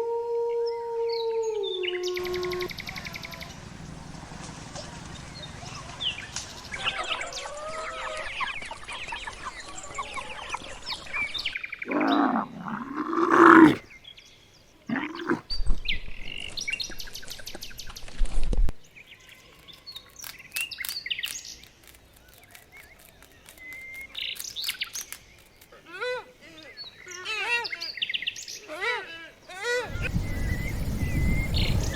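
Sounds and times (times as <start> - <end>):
bird calls chirps and trills: 5.4 - 18.1, 26.6 - 31.9.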